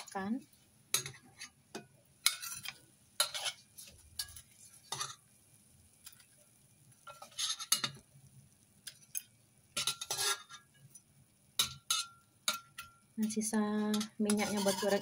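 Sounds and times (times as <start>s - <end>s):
spatula scraping a steel wok: 2.2s - 5.2s, 7.1s - 8.0s, 9.8s - 10.8s, 11.6s - 12.9s, 13.8s - 15.0s.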